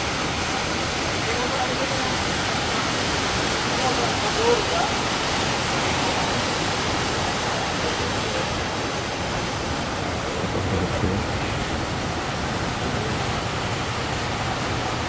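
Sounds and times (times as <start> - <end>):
heavy surf breaking: 0.0 - 15.0.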